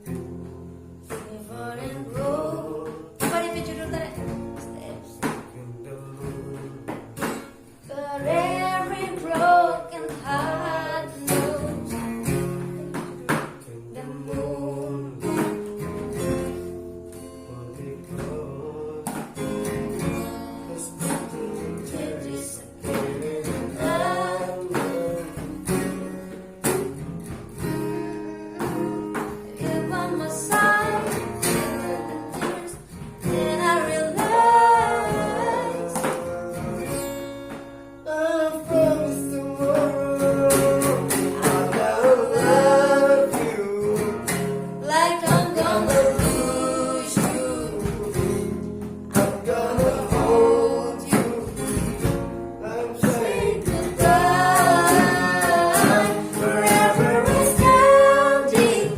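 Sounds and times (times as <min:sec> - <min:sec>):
acoustic guitar: 0:00.0 - 0:58.9
woman singing: 0:01.0 - 0:06.9, 0:07.8 - 0:15.7, 0:20.6 - 0:25.9, 0:28.3 - 0:36.9, 0:38.0 - 0:44.0, 0:44.8 - 0:51.8, 0:53.0 - 0:58.9.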